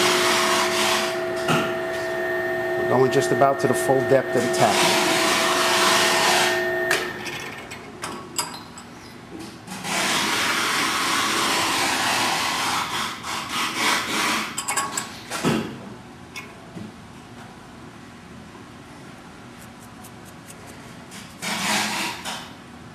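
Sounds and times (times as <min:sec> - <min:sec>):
drill tap machine running: 0:00.0 - 0:07.3.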